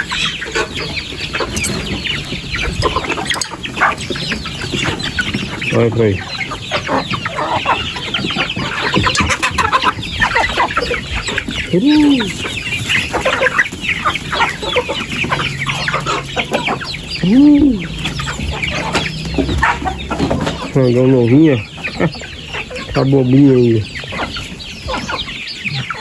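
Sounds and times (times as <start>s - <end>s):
chickens clucking: 0.0s - 26.0s
rising and falling chicken calls: 0.0s - 26.0s.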